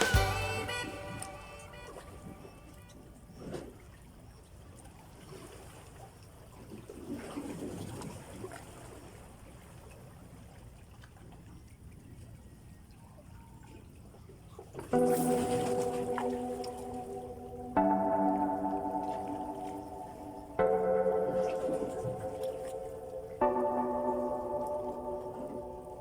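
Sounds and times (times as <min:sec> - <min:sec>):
shallow water trickling and sloshing: 0:03.4 - 0:17.2.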